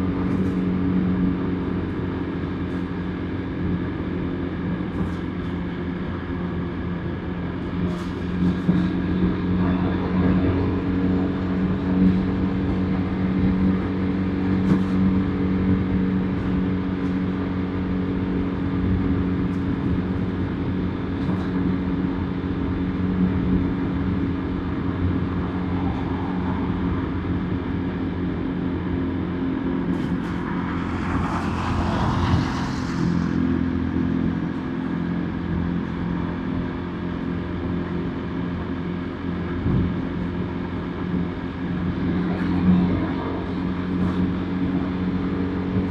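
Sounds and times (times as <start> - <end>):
wind and road noise: 0.0 - 45.9
loud rushing noise: 24.0 - 36.0.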